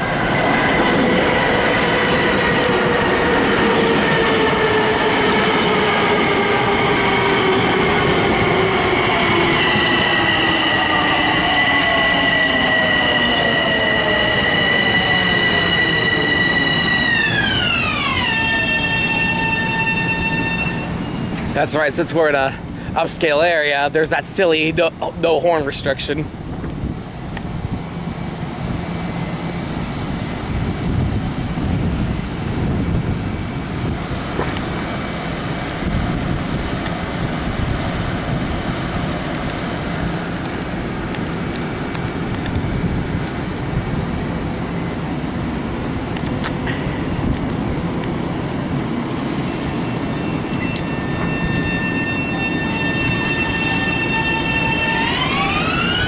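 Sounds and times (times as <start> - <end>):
electric train rumbling on rails: 0.0 - 56.0
rising whine: 49.0 - 56.0.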